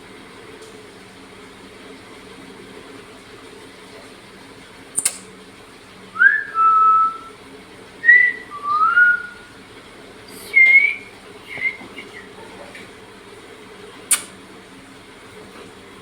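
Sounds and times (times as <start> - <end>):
steady low hum: 4.9 - 16.0
parrot whistling: 6.2 - 7.4, 8.0 - 9.5, 10.3 - 12.4
high parrot chirp: 10.4 - 12.4.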